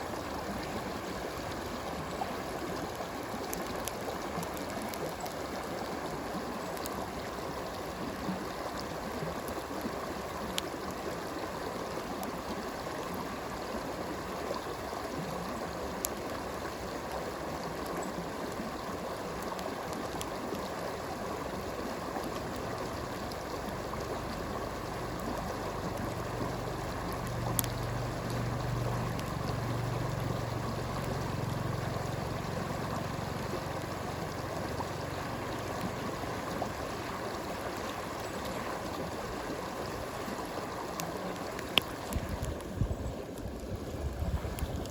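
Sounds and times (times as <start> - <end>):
flowing stream water: 0.0 - 44.9
campfire crackling pops: 27.0 - 29.6, 40.9 - 42.8.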